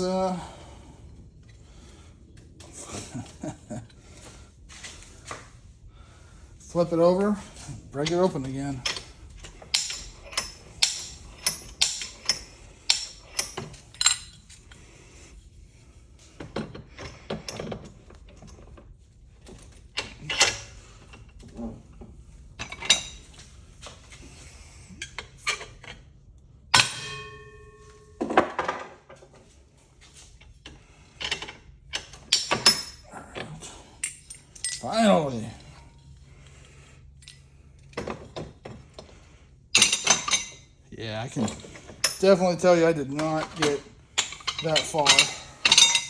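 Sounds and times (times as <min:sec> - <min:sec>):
metal parts clinking and knocking: 0:07.5 - 0:14.7, 0:20.0 - 0:20.7, 0:30.6 - 0:33.1, 0:34.0 - 0:35.5, 0:39.8 - 0:40.7, 0:41.3 - 0:46.0
metal piece ringing: 0:26.8 - 0:28.5.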